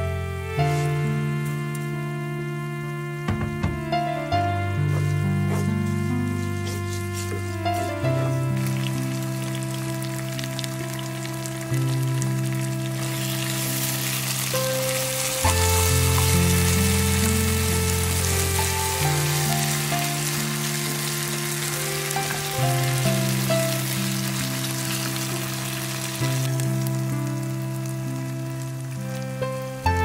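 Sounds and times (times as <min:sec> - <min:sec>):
slow held chords music: 0:00.0 - 0:30.0
wooden spoon stirring: 0:04.9 - 0:09.9
food sizzling in a frying pan: 0:07.2 - 0:30.0.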